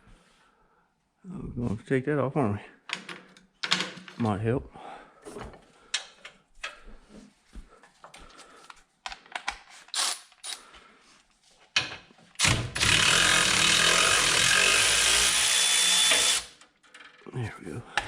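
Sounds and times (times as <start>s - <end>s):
power tool running: 12.4s - 16.6s.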